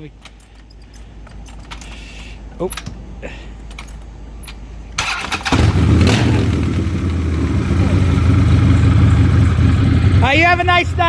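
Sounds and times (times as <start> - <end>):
motorcycle engine running loud: 5.5 - 11.0.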